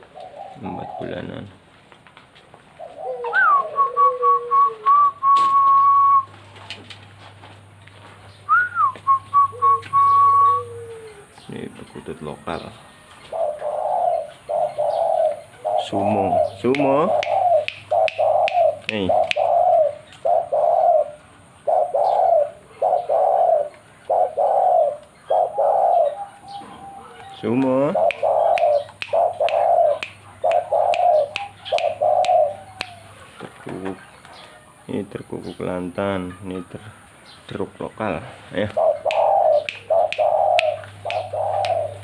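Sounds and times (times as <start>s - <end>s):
dove singing high call: 0.0s - 1.6s, 2.7s - 6.7s, 8.3s - 42.0s
low dove coo: 0.0s - 1.6s, 2.8s - 6.4s, 8.5s - 11.4s, 13.2s - 34.0s, 38.7s - 42.0s.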